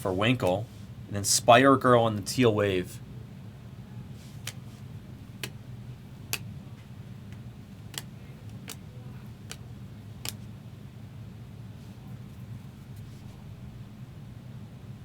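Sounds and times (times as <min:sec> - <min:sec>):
steady low hum: 0:00.0 - 0:15.0
trading cards clicking on table: 0:07.3 - 0:10.5.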